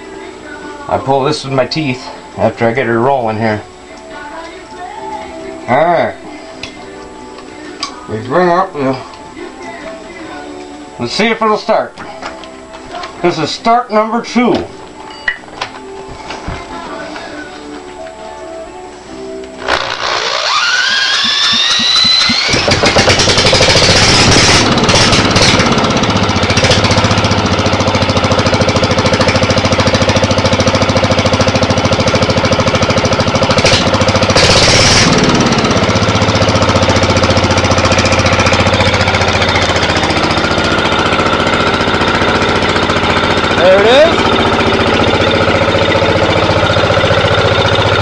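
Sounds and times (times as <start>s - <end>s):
electric starter whine: 19.5s - 48.0s
diesel engine knocking: 21.0s - 48.0s.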